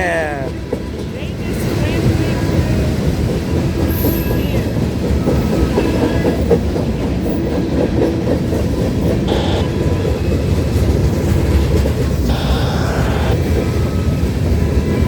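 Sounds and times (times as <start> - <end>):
train wheels clacking over rails: 0.4 - 12.2.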